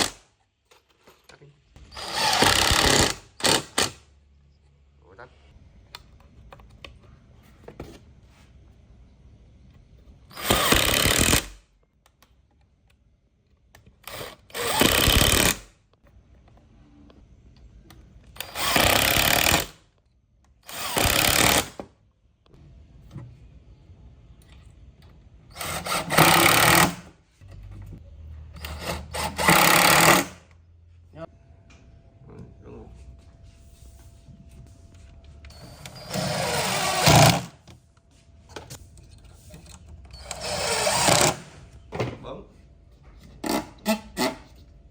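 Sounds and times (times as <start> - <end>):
power drill whirring: 0.0 - 0.2, 1.8 - 4.0, 10.3 - 11.6, 14.0 - 15.7, 18.4 - 19.8, 20.6 - 21.8, 25.5 - 27.1, 28.6 - 30.5, 35.5 - 37.6, 40.1 - 41.6.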